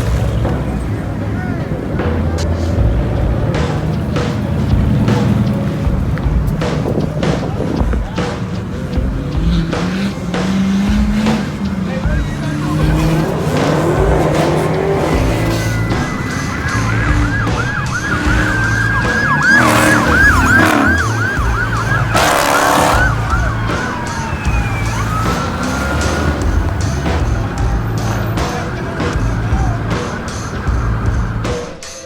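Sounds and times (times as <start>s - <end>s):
vehicle rumble: 0.0s - 32.0s
police siren yelp and wail: 9.4s - 31.8s.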